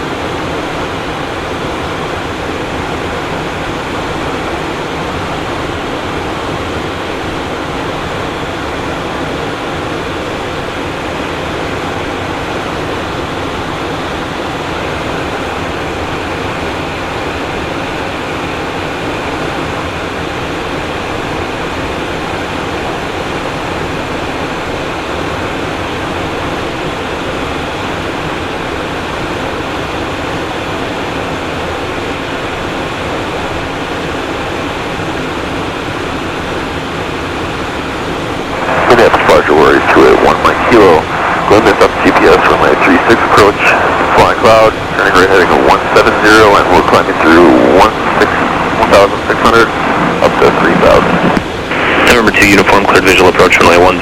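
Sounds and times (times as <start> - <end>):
jet cockpit airflow and engine hum: 0.0 - 54.0.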